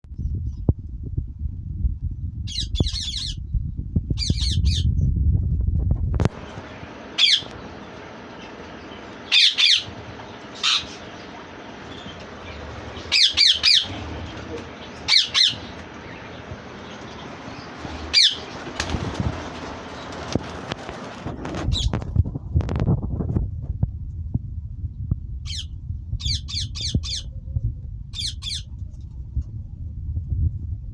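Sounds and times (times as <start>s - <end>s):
low rumble of wind: 0.0s - 30.9s
parakeets screeching: 2.5s - 3.4s, 4.2s - 4.9s, 6.4s - 21.9s, 25.5s - 27.3s, 28.1s - 28.7s.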